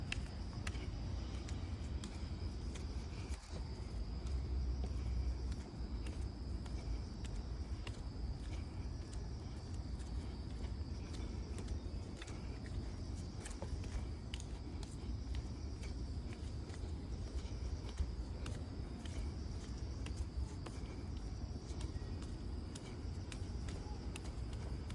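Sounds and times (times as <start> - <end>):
bare footsteps on trail: 0.0 - 24.9
insects chirring: 0.0 - 24.9.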